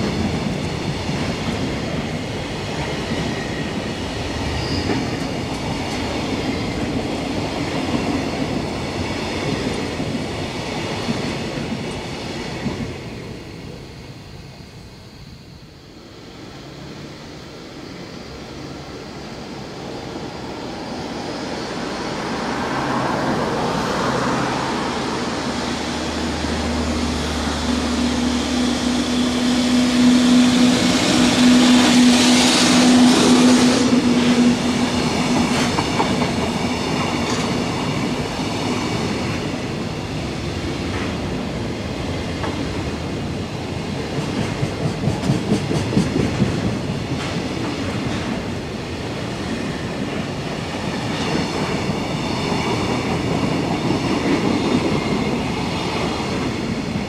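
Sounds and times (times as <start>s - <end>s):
electric locomotive humming: 0.0s - 57.0s
wheels clacking over rail joints: 30.0s - 38.6s.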